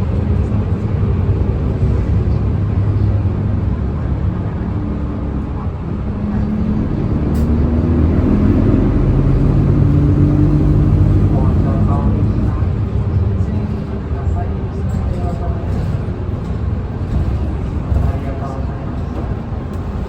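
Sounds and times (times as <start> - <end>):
bus diesel engine running: 0.0 - 20.0.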